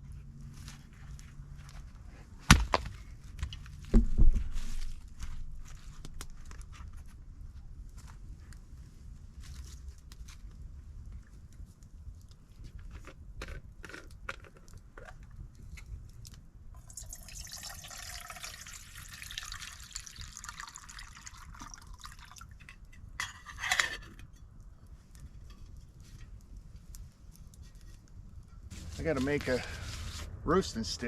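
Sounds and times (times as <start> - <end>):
campfire crackling and popping: 3.4 - 23.0, 24.6 - 31.0
fire hissing and sizzling: 28.7 - 31.0.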